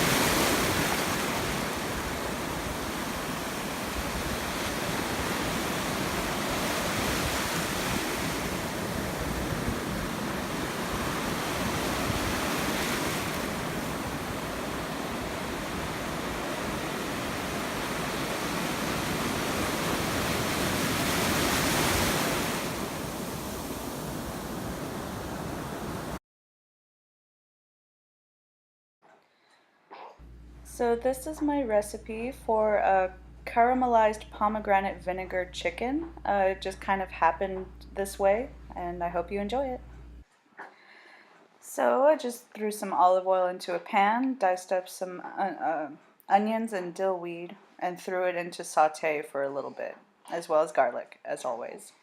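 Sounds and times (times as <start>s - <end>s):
ocean waves breaking on beach: 0.0s - 26.2s
wind on microphone: 0.0s - 26.2s.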